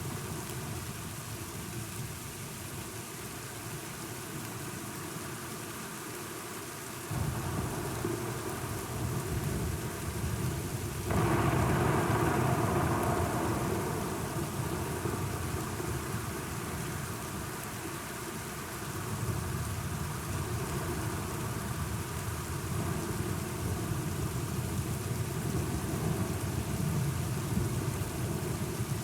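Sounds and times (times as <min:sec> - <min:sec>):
steady rain: 0:00.0 - 0:29.0
rolling thunder rumble: 0:07.1 - 0:17.6.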